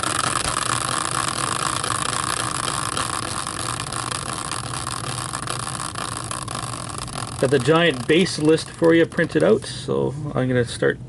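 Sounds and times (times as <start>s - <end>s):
small motor whirring: 0.0s - 10.0s.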